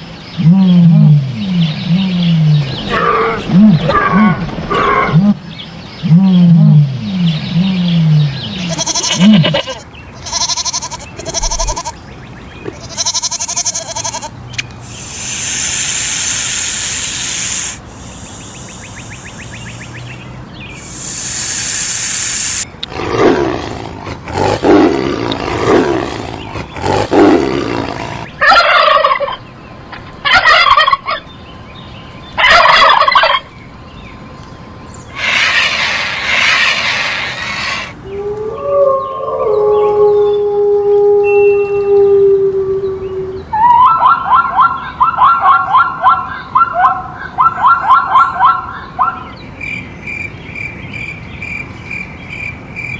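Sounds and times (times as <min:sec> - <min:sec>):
animal calls: 0:06.0 - 0:12.0, 0:12.6 - 0:20.1, 0:20.7 - 0:31.3, 0:35.1 - 0:49.3
hiss: 0:14.8 - 0:20.0, 0:20.8 - 0:22.7, 0:35.2 - 0:38.0
turkey gobbling: 0:20.8 - 0:22.6, 0:28.0 - 0:29.4, 0:30.0 - 0:31.2, 0:32.4 - 0:33.5.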